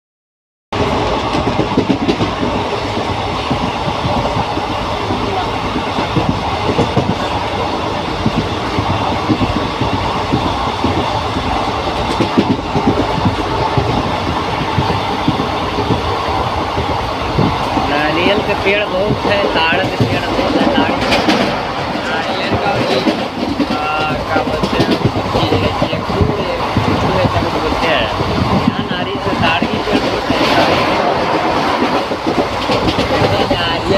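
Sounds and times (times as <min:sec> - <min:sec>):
train wheels rumbling on rails: 0:00.7 - 0:33.9.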